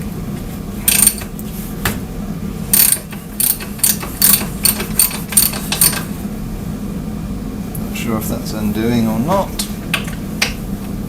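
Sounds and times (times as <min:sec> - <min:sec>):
air ratchet bursts: 0:00.9 - 0:01.2, 0:02.7 - 0:06.1.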